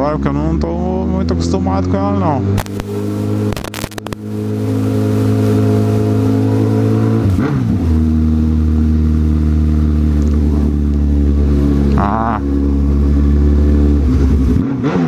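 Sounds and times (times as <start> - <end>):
sharp clicks: 2.6 - 2.9, 3.5 - 4.2.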